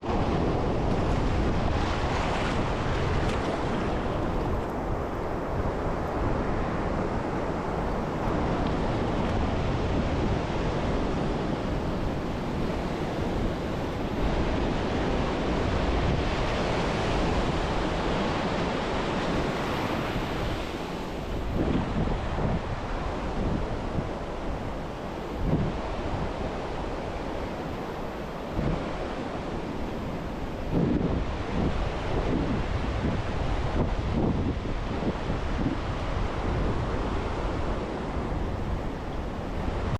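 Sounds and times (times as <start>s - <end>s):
ocean surf washing ashore: 0.0s - 39.9s
wind buffeting microphone: 0.0s - 39.9s.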